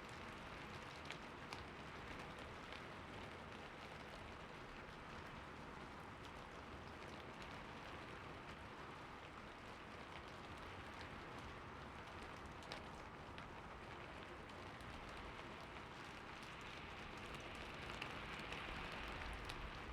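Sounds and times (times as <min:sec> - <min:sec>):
heavy rain falling: 0:11.9 - 0:19.9
raindrop ticks: 0:12.0 - 0:19.9.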